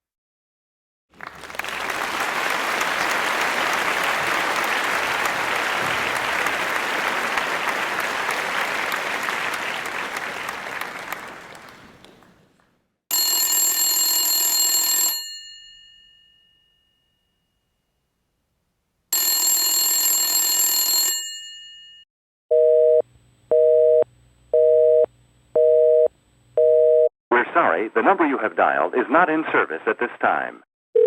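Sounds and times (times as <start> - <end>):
crowd applauding: 1.1 - 12.8
telephone bell ringing: 13.1 - 17.4, 19.2 - 23.0.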